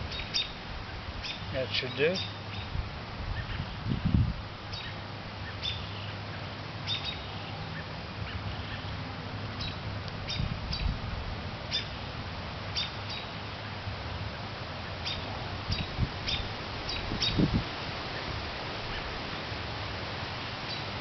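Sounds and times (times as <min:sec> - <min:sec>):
small bird chirping: 0:00.0 - 0:00.6, 0:02.1 - 0:02.8, 0:04.7 - 0:06.1, 0:06.8 - 0:07.9, 0:09.6 - 0:10.9, 0:11.7 - 0:11.9, 0:15.0 - 0:17.5.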